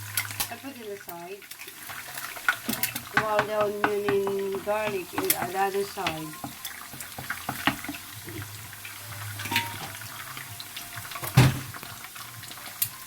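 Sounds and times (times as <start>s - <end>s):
food sizzling in a frying pan: 0.0s - 13.0s
utensil clicking against pan: 1.1s - 8.5s.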